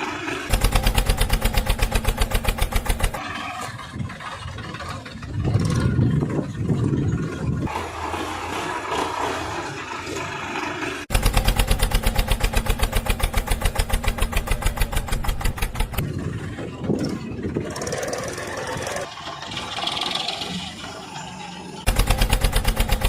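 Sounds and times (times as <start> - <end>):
tractor diesel engine running: 0.0 - 23.0
rapid exhaust beat: 0.5 - 3.2, 11.1 - 16.0, 21.9 - 23.0.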